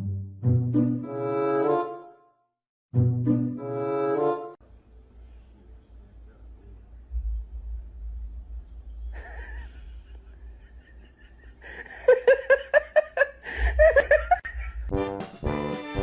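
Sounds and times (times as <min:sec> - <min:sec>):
low rumble: 0:06.6 - 0:11.1
person laughing: 0:09.1 - 0:14.9.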